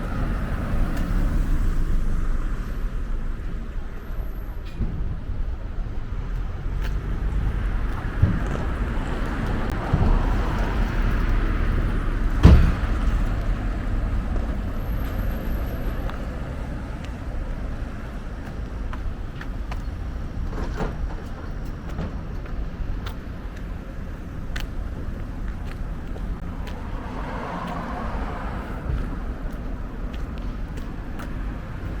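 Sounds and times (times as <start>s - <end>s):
vehicle rumble: 0.0s - 32.0s
sharp knock: 12.4s - 13.0s.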